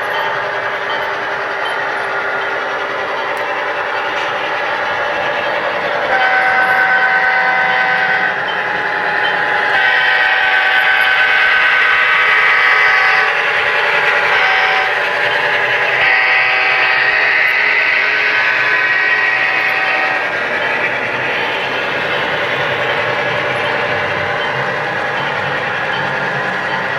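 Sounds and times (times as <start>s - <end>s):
model train running: 0.0s - 26.9s
model train horn blasts: 6.1s - 8.4s, 9.7s - 13.4s, 14.2s - 15.0s, 15.9s - 20.3s.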